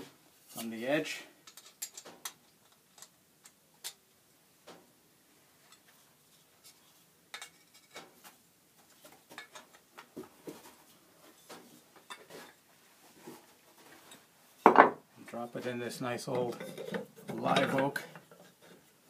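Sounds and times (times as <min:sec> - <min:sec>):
metal parts clicking and clinking: 0:01.4 - 0:04.0.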